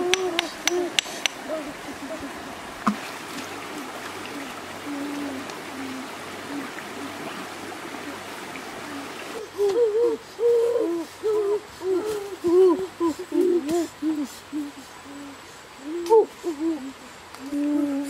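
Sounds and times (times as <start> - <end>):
stream water running: 0.0 - 18.0
bird hooting calls: 3.5 - 17.7.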